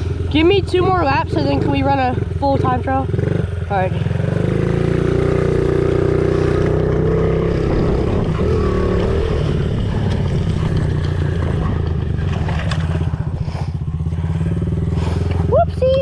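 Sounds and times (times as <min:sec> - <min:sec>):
small motorbike engine running: 0:00.0 - 0:16.0.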